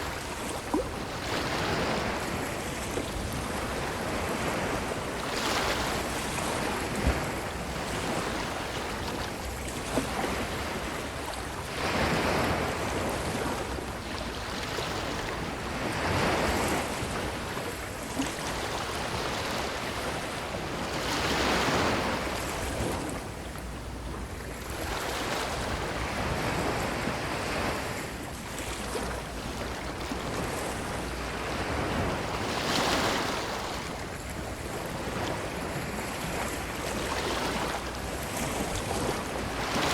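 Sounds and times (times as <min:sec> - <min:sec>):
ocean waves washing on beach: 0:00.0 - 0:39.9.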